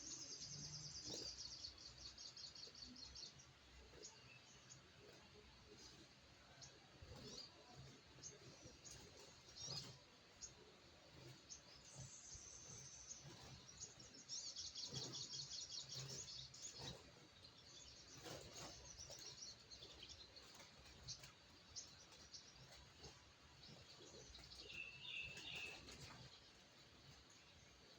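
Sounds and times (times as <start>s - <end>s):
bird chirping and trilling: 23.7s - 26.3s.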